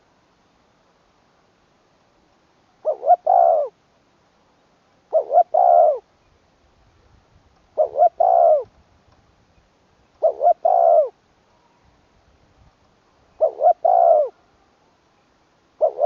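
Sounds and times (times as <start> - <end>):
dove cooing: 2.8 - 3.8, 5.1 - 6.1, 7.7 - 8.7, 10.2 - 11.2, 13.3 - 14.7, 15.8 - 16.0.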